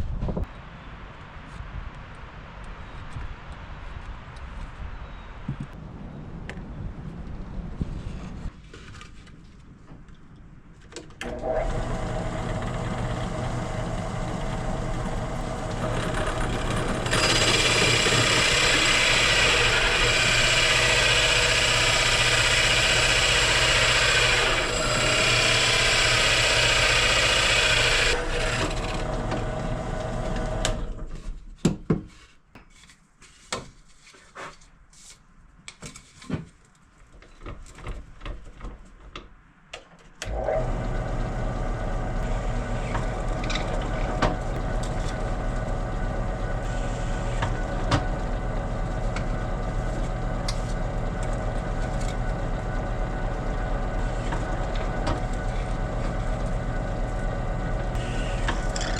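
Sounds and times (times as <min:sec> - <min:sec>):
electric power tool cutting wood: 0:11.2 - 0:31.0, 0:40.2 - 0:58.9.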